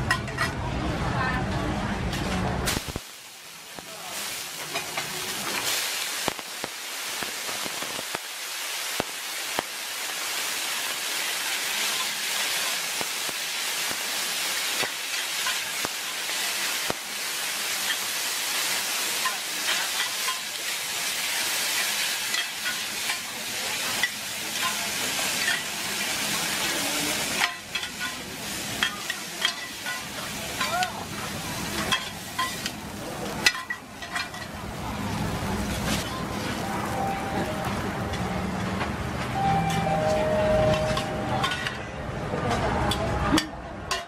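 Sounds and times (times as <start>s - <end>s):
food sizzling on a steel pan: 2.6s - 41.8s
metal spatulas scraping a pan: 23.9s - 25.8s, 27.2s - 30.8s, 31.7s - 32.8s, 33.4s - 34.6s.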